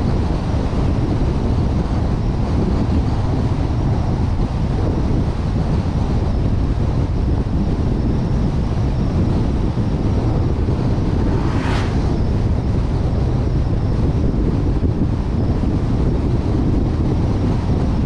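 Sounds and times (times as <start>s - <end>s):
road and engine rumble: 0.0s - 18.0s
wind rushing over microphone: 0.0s - 18.0s.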